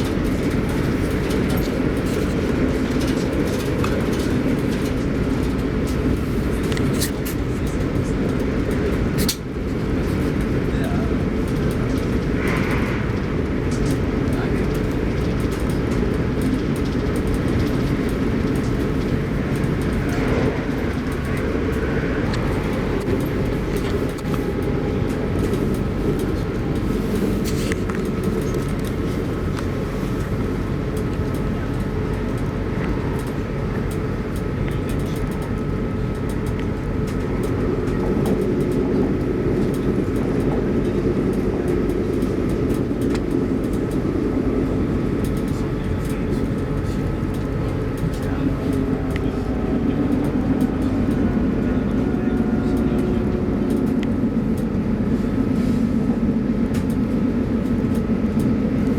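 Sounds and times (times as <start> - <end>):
faint steady whine: 0.0 - 58.9
train wheels rumbling on rail: 0.0 - 58.9.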